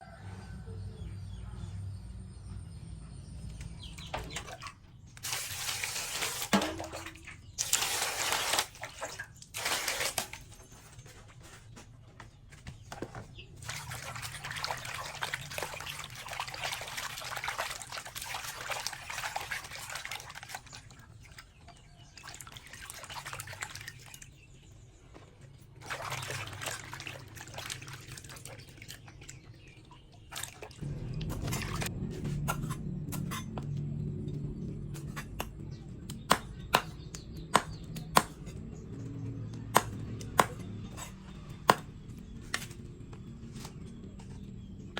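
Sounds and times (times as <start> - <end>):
water splashing: 4.0 - 10.6, 13.6 - 24.4, 25.8 - 31.9.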